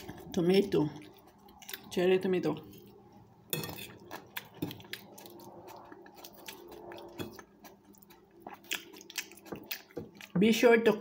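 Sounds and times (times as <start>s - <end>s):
person chewing wet crunches: 0.0s - 10.4s.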